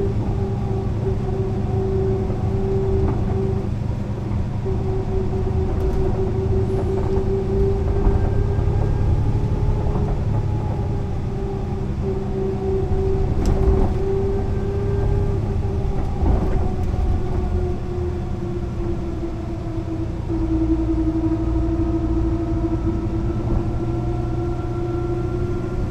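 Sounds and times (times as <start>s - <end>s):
bus engine rumble: 0.0s - 25.9s
bus whine: 0.0s - 25.9s.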